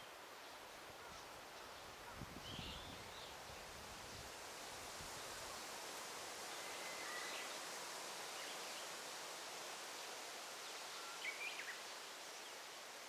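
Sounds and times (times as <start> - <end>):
leaves rustling: 0.0 - 13.0
faint bird chirps: 10.9 - 11.8.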